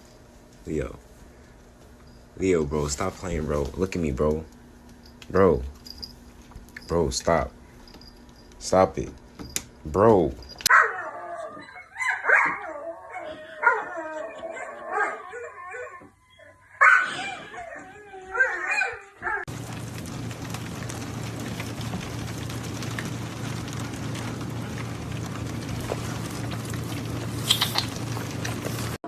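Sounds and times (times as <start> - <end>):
low hum with hiss: 0.0 - 29.0
dog whining and yipping: 10.6 - 19.5.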